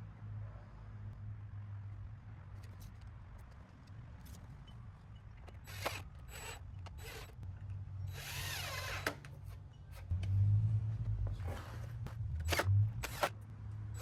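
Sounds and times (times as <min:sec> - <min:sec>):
power drill driving screws into wood: 0:05.6 - 0:07.4, 0:08.1 - 0:09.3, 0:12.4 - 0:13.3
drill clutch click: 0:12.4 - 0:13.3.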